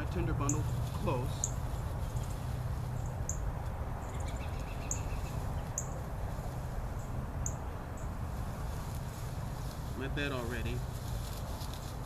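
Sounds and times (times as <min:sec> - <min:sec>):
bird chirps: 0:01.4 - 0:01.6, 0:04.0 - 0:06.0.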